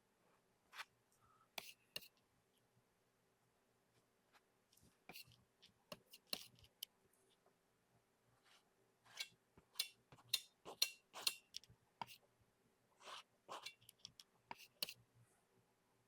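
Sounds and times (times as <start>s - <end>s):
scratchy paint strokes on canvas: 13.0s - 13.8s.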